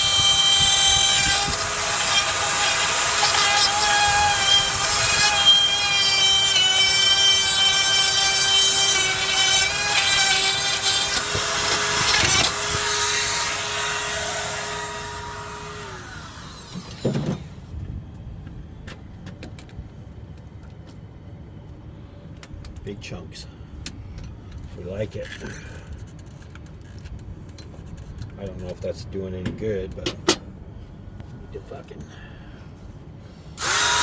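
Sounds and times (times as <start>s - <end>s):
power tool whining: 0.0s - 17.5s, 33.6s - 34.0s.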